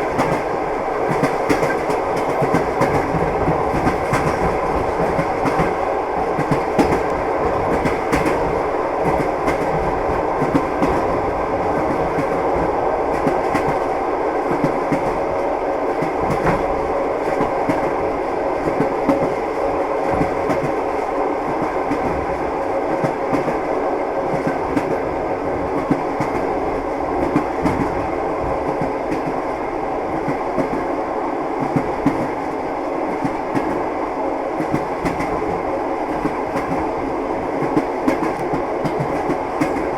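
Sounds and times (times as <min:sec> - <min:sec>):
train carriage rolling: 0:00.0 - 0:13.9.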